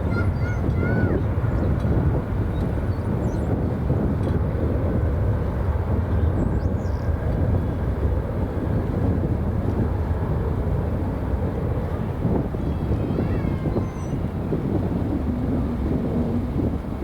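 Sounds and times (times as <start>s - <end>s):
jet engines rumbling: 7.1s - 17.0s.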